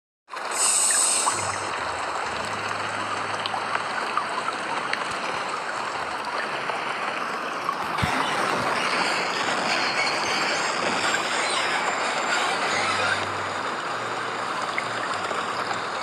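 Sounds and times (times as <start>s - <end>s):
raindrops ticking: 0.4s - 10.1s, 13.2s - 16.0s
heavy rain hissing: 0.4s - 16.0s.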